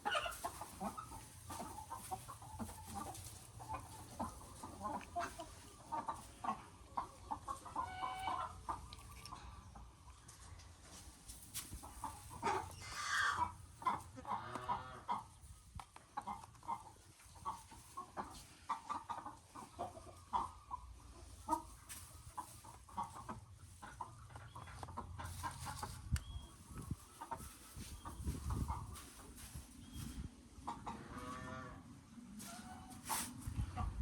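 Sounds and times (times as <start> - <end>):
chickens clucking: 0.0 - 34.0.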